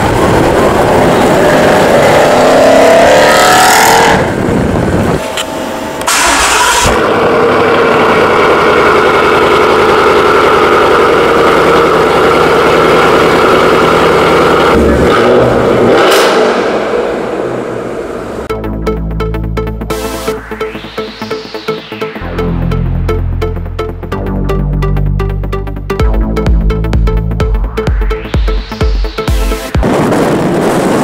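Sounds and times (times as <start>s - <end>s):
car engine accelerating: 0.0s - 31.0s
car engine cold start: 5.2s - 12.8s.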